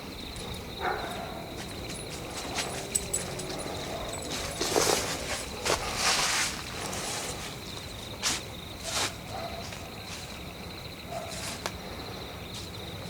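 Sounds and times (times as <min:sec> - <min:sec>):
crickets chirring: 0:00.0 - 0:13.0
footsteps crunching on forest floor: 0:01.5 - 0:10.5.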